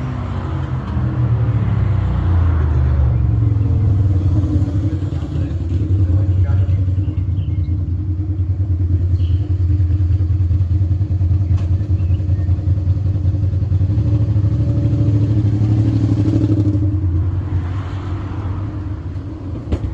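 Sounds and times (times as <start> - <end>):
loud motorcycle engine running: 4.2 - 17.1.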